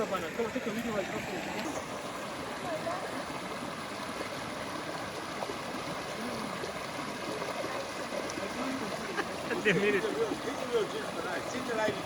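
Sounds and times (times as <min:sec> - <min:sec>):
stream flowing: 0:00.0 - 0:12.0.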